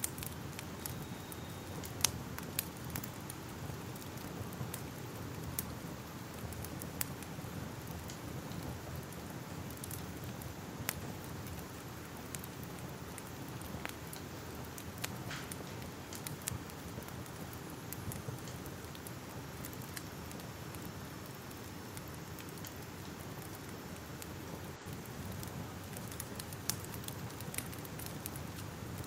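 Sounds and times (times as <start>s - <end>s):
fire crackling: 0.0s - 29.0s.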